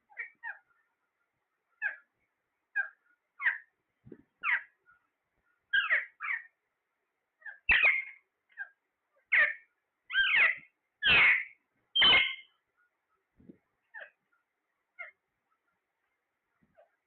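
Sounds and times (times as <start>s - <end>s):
parrot calling: 0.1s - 0.7s, 1.8s - 2.1s, 2.7s - 3.7s, 4.4s - 4.8s, 5.7s - 6.6s, 7.4s - 12.5s, 13.9s - 14.2s, 15.0s - 15.2s.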